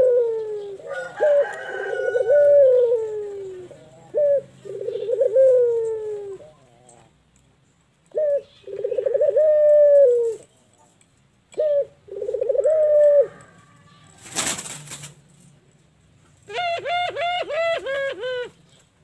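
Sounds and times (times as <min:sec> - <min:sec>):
dove cooing: 0:00.0 - 0:07.2, 0:08.1 - 0:10.5, 0:11.5 - 0:14.4, 0:16.5 - 0:18.7.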